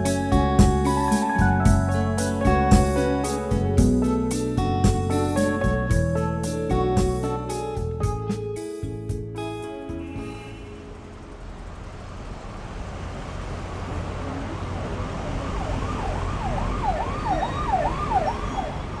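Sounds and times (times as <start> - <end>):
emergency siren yelping: 15.6 - 18.9.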